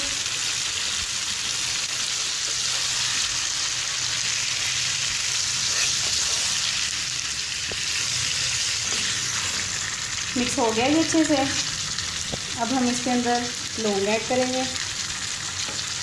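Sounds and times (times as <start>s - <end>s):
food sizzling in oil: 0.0s - 16.0s
spatula stirring in pan: 5.2s - 6.9s, 7.6s - 10.2s.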